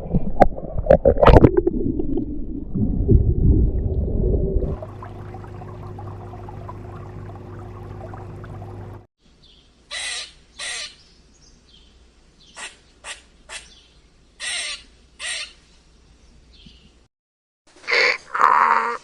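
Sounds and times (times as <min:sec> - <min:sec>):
owl raspy screeches: 0:09.9 - 0:11.0, 0:14.4 - 0:15.6, 0:17.8 - 0:19.0.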